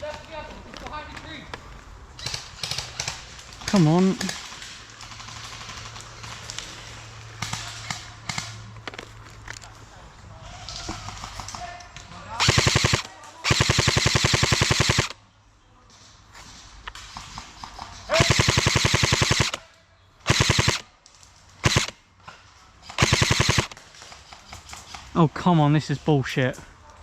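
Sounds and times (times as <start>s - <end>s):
airsoft rifle firing bursts: 12.4s - 15.2s, 18.1s - 19.6s, 20.2s - 20.9s, 21.6s - 22.0s, 22.9s - 23.8s.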